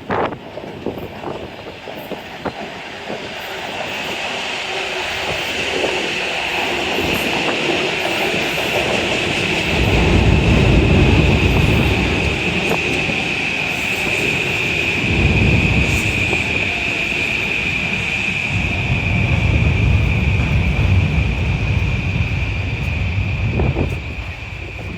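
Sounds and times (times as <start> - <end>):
train passing on elevated track: 0.0 - 24.9
heavy low rumble: 9.7 - 13.2, 14.8 - 24.9.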